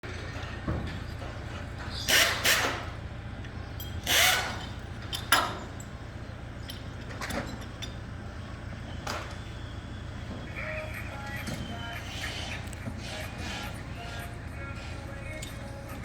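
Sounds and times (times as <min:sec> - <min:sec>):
power tool bursts: 0:02.0 - 0:02.8, 0:04.0 - 0:04.7
steady low hum: 0:07.8 - 0:16.0.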